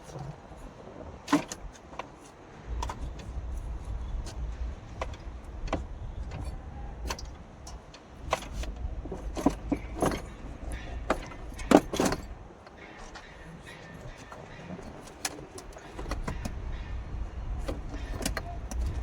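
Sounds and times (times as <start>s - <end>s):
metallic clinks and knocks: 4.3s - 16.8s, 17.6s - 19.0s.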